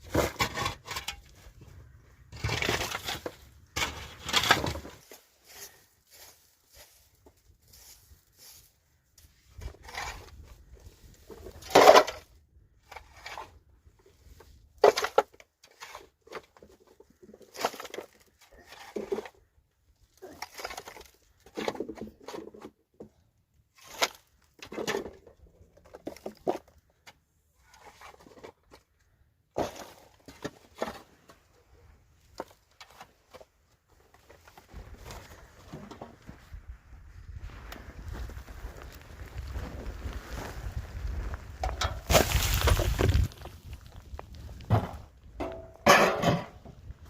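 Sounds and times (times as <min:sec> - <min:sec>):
knocks and scrapes of hard materials: 0:00.0 - 0:05.8, 0:09.5 - 0:19.5, 0:20.3 - 0:31.6, 0:32.2 - 0:36.6, 0:41.5 - 0:47.0.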